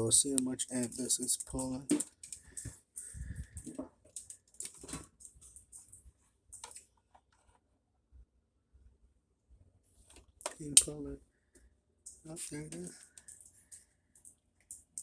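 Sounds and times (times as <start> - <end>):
tools clicking and knocking: 0.2 - 6.9.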